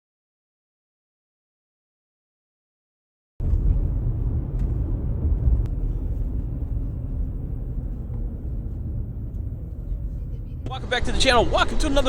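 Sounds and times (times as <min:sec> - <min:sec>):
low fluctuating outdoor rumble: 0:03.4 - 0:12.0.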